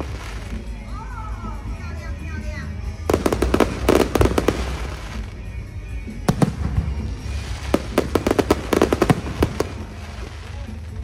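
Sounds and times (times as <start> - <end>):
fireworks crackling bangs: 0.0 - 0.8, 3.1 - 5.4, 6.3 - 11.0.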